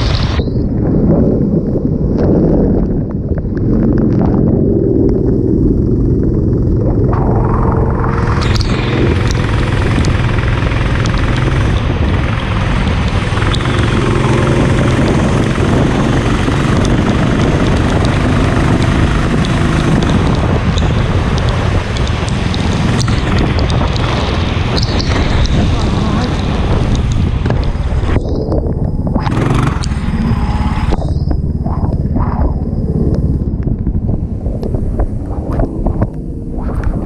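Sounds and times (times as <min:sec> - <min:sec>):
kart engines running: 0:08.1 - 0:28.0, 0:29.2 - 0:30.9.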